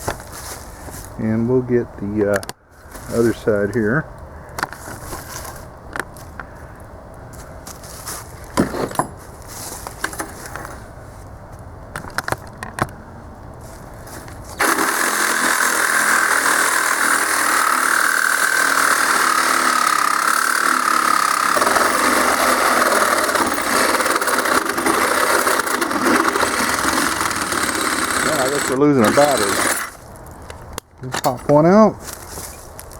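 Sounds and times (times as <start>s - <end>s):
reciprocating saw cutting steel: 14.6s - 30.0s.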